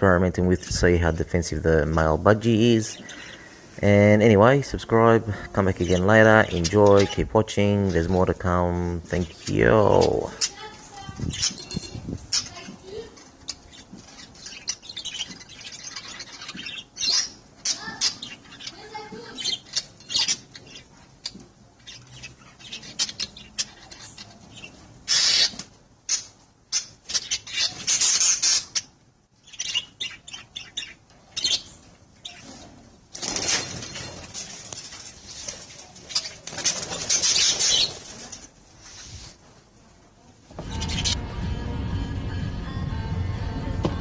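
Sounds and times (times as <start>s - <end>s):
birds chattering: 0.0s - 38.6s, 40.6s - 41.2s
budgies and parrot shrill calling: 9.2s - 32.6s, 36.0s - 38.1s, 40.6s - 41.2s.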